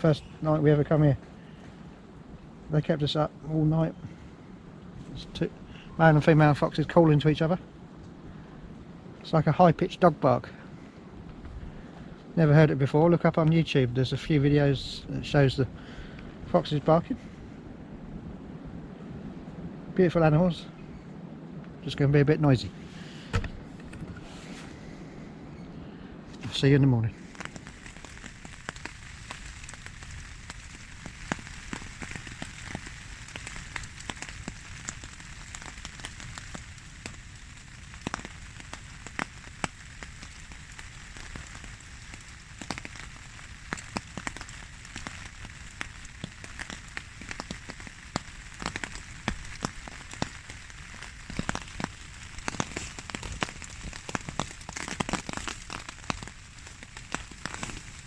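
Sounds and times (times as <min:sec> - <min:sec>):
wind rumbling against microphone: 0:00.0 - 0:58.0
small ticks and crackles: 0:26.4 - 0:58.0.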